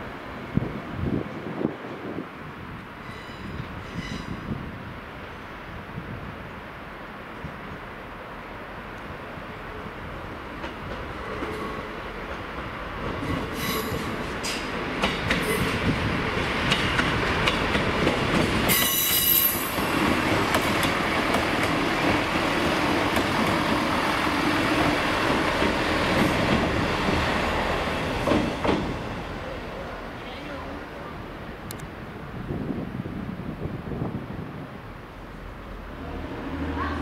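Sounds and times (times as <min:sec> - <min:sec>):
train brake squeal: 0:03.0 - 0:04.5, 0:13.4 - 0:14.6, 0:18.7 - 0:19.8
train running rumble: 0:09.9 - 0:37.0.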